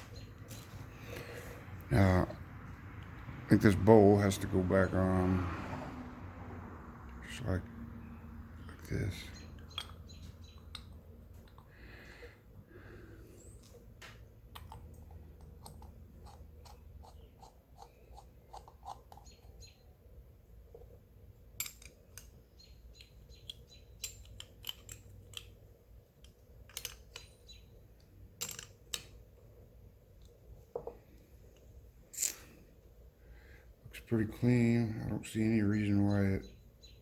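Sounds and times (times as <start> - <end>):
small metal parts clicking: 21.6 - 29.3, 31.5 - 32.6.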